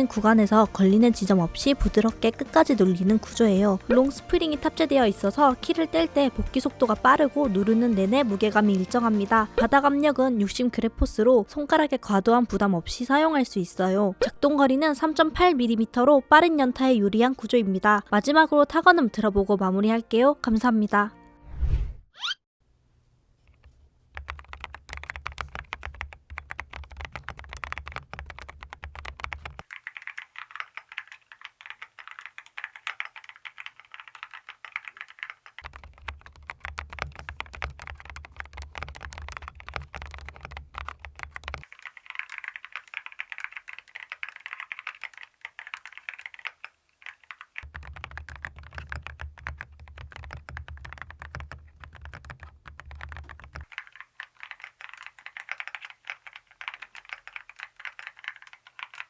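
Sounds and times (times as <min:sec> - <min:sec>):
fast typing on mechanical keyboard: 0:00.0 - 0:10.2, 0:24.1 - 0:59.0.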